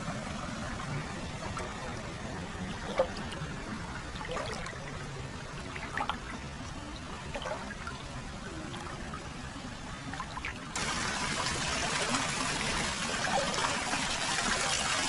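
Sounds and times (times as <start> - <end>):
water pouring and trickling: 0.0 - 15.0
small water splashes: 0.2 - 15.0.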